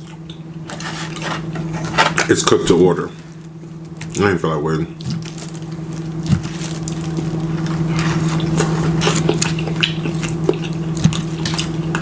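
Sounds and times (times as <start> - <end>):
steady low hum: 0.0 - 12.0
wet chewing mouth sounds: 6.1 - 12.0.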